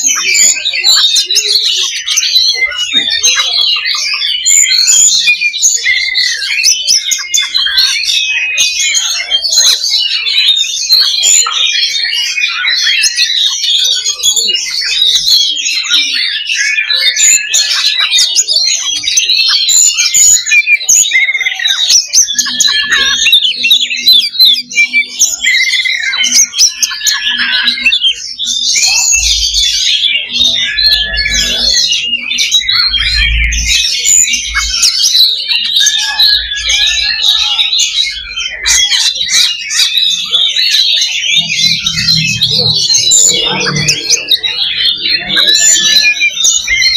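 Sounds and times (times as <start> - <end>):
magpie-robins singing: 0.0 - 46.9.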